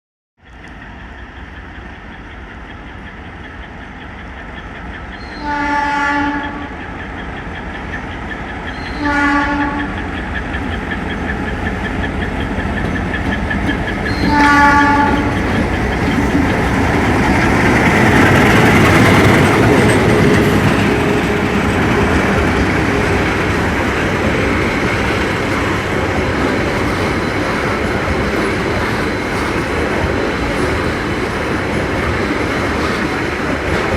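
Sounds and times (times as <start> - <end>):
train wheels on rails: 0.4 - 33.9
locomotive horn: 5.3 - 6.7, 8.9 - 10.0, 14.1 - 15.4
locomotive engine rumble: 9.6 - 33.9.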